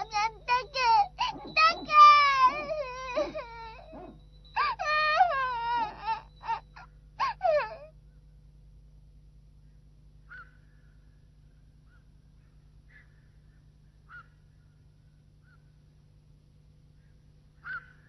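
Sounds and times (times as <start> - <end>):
faint short bird calls: 10.2 - 11.2, 11.8 - 14.8, 15.4 - 15.8, 17.0 - 18.0.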